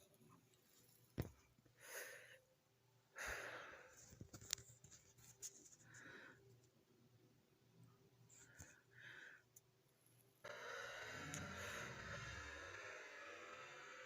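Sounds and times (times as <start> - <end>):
person smoking breaths: 3.1 - 4.2, 10.5 - 13.9.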